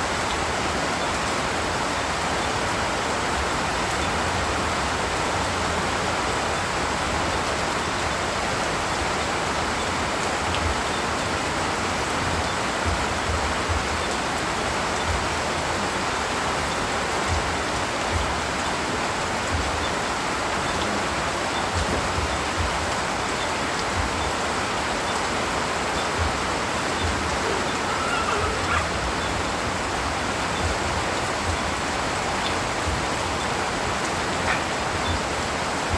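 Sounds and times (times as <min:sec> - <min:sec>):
rain falling in a forest: 0:00.0 - 0:35.9.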